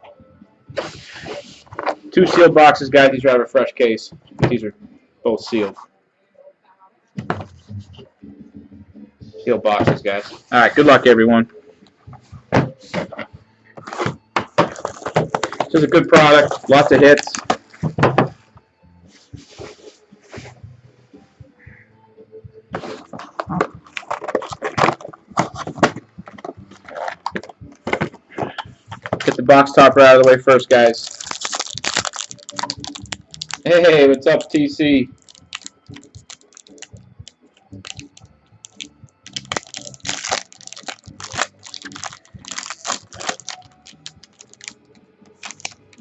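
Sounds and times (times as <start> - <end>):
packaging wrap crackling: 14.6 - 17.7, 23.2 - 27.6, 30.3 - 34.6, 35.2 - 44.8, 45.4 - 46.0.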